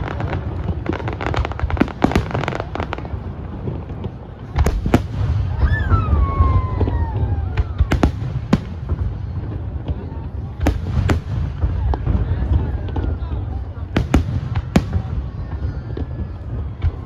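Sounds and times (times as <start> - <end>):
fireworks crackling bangs: 0.0 - 17.0
firework falling whistle: 5.5 - 8.2.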